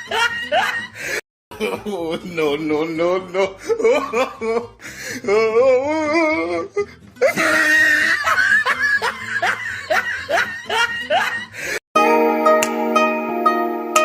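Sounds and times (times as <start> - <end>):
person laughing: 0.0 - 2.5, 3.2 - 11.8.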